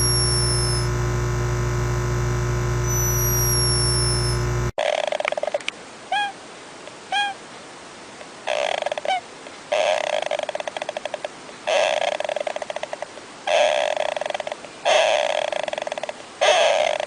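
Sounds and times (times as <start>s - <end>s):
electronic transition tone: 0.0s - 4.7s.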